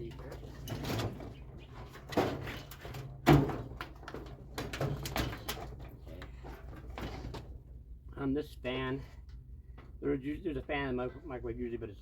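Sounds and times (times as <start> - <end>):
sheet metal clunking and rattling: 0.0 - 7.6.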